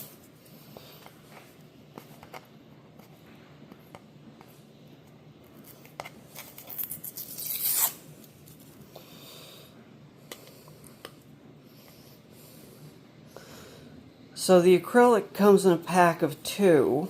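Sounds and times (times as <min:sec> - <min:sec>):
plastic film peeling and tearing: 0:06.3 - 0:08.0.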